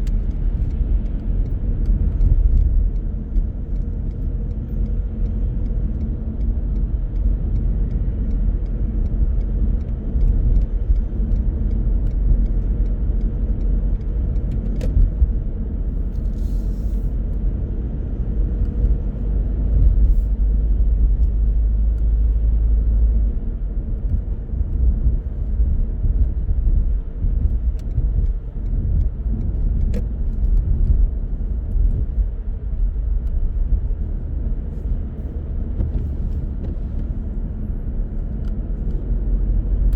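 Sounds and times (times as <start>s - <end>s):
car tyres and engine rumble: 0.0s - 39.9s.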